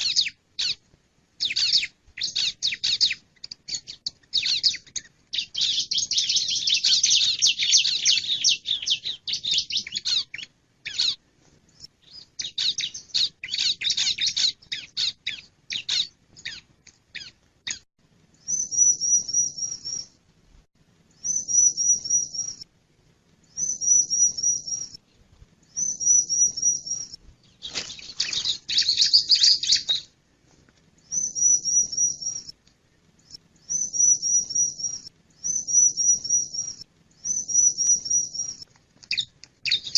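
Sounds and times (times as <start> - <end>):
bird scratchy high chatter: 26.3 - 30.1.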